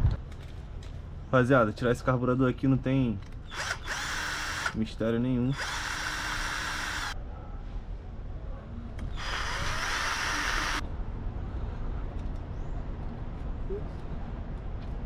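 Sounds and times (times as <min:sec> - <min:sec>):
power drill spinning: 0:03.5 - 0:04.8, 0:05.5 - 0:07.2, 0:09.1 - 0:10.8.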